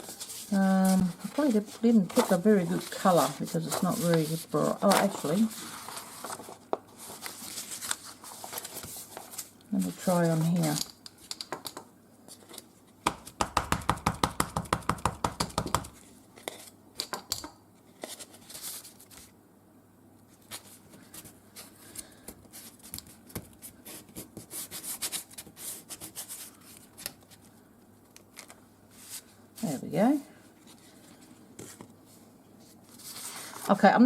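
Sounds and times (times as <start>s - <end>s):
paper clicks and rubbing: 0.0s - 9.5s
fast taps on tabletop: 13.1s - 15.9s.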